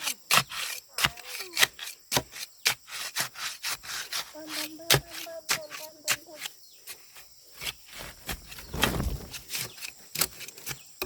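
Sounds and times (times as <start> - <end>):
hand saw cutting wood: 0.0 - 6.5.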